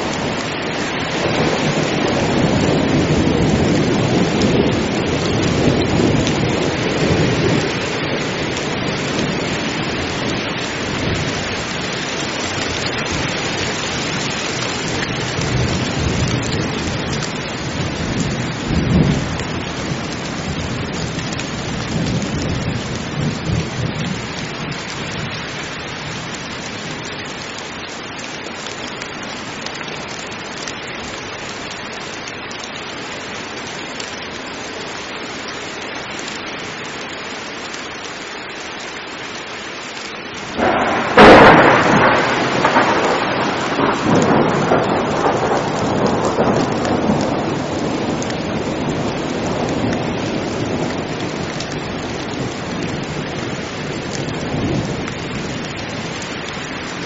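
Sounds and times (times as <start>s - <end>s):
thunder rumbling: 0.0s - 25.4s, 40.5s - 56.2s
heavy rain: 0.0s - 57.0s
thunderclap: 40.6s - 51.4s.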